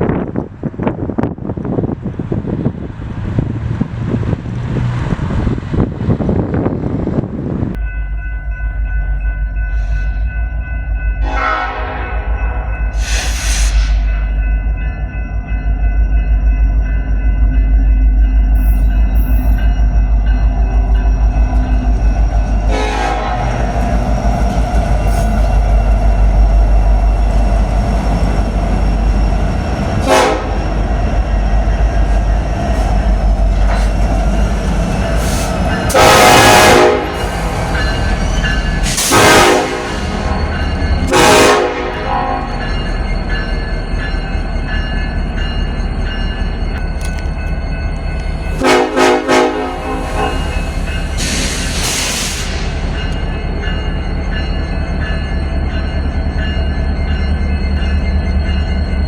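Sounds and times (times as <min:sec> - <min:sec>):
train rumble: 0:00.0 - 0:59.0
locomotive air horn blasts: 0:11.2 - 0:12.7, 0:22.7 - 0:23.7, 0:30.0 - 0:30.7, 0:35.9 - 0:37.5, 0:38.9 - 0:40.2, 0:41.1 - 0:42.5, 0:48.6 - 0:50.5.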